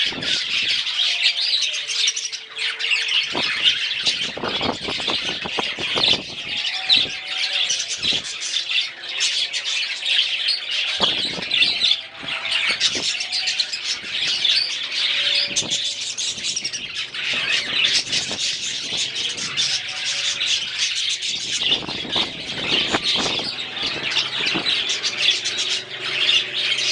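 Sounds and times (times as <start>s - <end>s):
budgerigars chattering and squawking: 0.0s - 26.9s.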